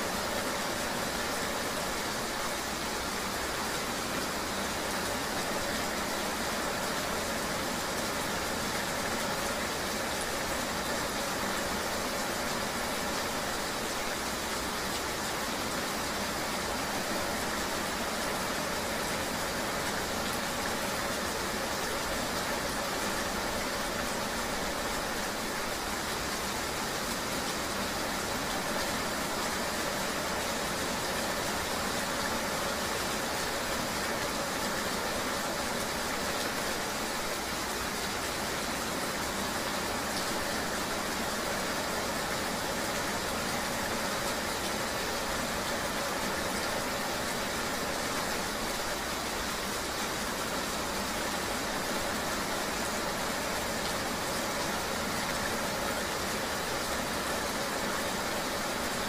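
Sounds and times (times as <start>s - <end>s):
rain: 0.0s - 59.0s.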